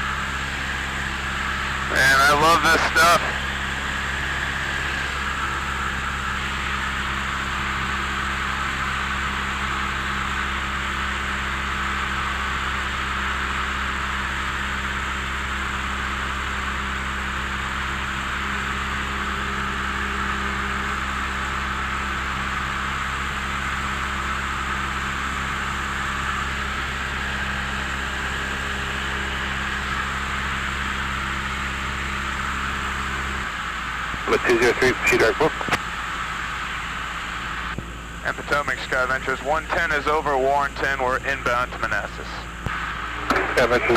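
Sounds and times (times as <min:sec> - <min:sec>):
propeller airplane engine drone: 0:00.0 - 0:43.9.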